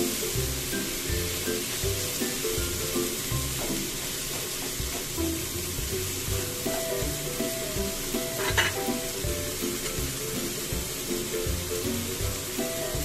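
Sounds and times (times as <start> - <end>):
background music: 0.0 - 13.0
food sizzling in a frying pan: 0.0 - 13.0
spatula clacking against pan: 6.7 - 11.0.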